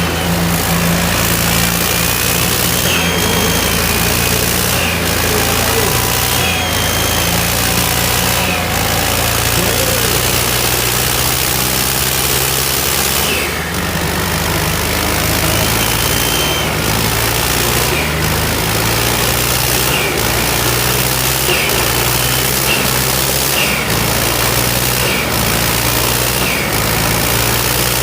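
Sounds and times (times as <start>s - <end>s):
tractor diesel engines running: 0.0s - 28.0s.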